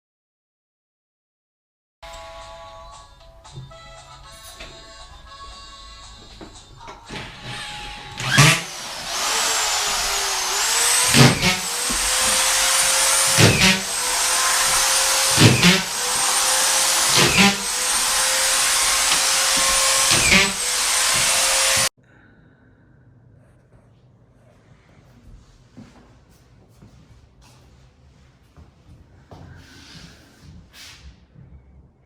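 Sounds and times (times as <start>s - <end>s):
power tool motor whining: 5.7s - 21.9s.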